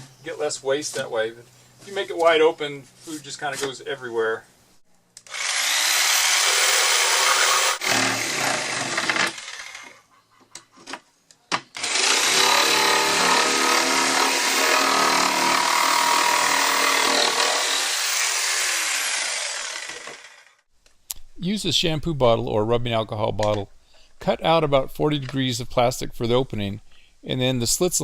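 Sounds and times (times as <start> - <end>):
power tool motor whine: 5.2 - 9.9, 11.8 - 20.3.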